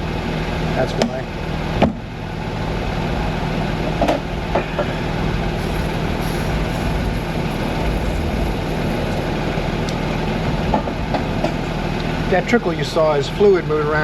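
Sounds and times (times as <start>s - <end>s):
car engine idling: 5.0s - 9.3s.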